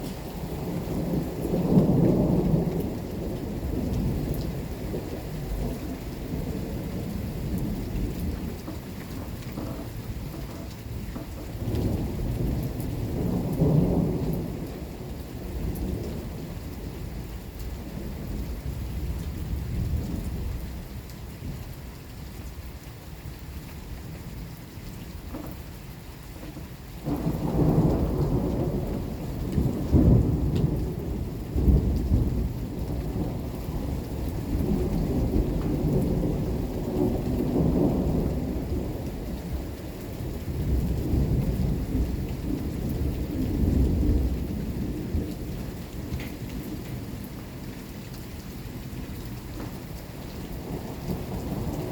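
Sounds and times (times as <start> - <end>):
thunder rumbling: 0.0 - 21.6, 26.5 - 47.3, 49.5 - 51.9
steady rain: 0.0 - 51.9.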